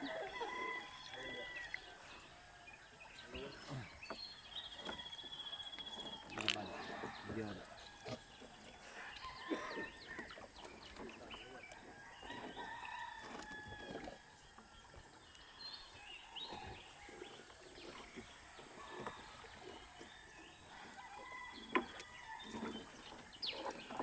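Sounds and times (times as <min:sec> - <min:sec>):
rooster crowing: 0:00.0 - 0:01.8.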